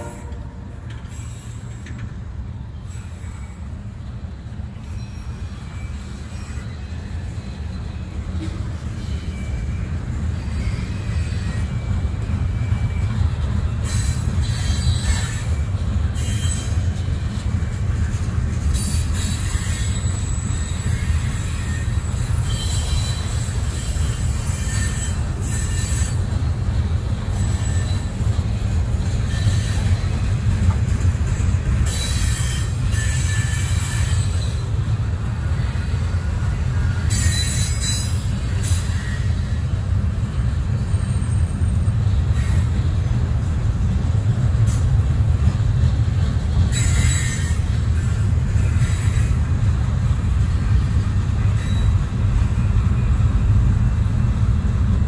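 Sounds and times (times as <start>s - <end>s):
freight train rumbling past: 0.0s - 55.0s
high-pitched wheel squeal: 13.8s - 17.1s, 18.7s - 26.4s, 27.3s - 30.3s, 31.8s - 39.7s, 46.7s - 49.4s.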